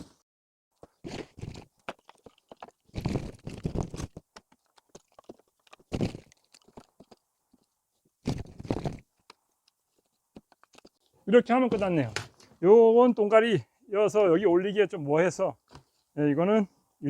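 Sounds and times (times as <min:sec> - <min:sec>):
wood pieces knocking and scraping: 0:00.8 - 0:09.4, 0:10.0 - 0:11.0.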